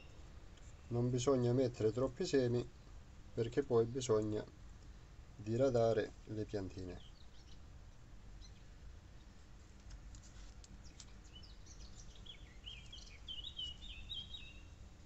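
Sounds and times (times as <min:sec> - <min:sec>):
faint background hum: 0:00.0 - 0:15.0
small bird twittering: 0:10.8 - 0:14.8.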